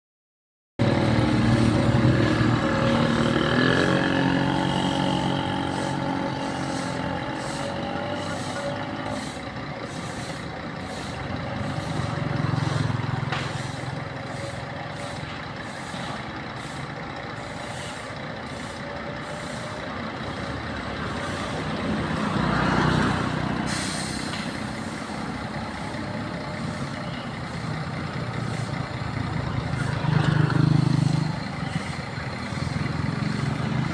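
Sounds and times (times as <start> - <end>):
bus diesel engine running: 0.8 - 33.9
air hiss: 23.6 - 25.4.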